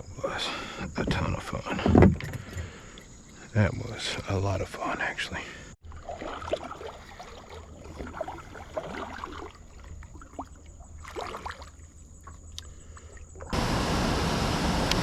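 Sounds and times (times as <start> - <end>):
water lapping around kayak: 0.6 - 3.5, 5.8 - 14.7
loud rushing hiss: 13.6 - 15.0.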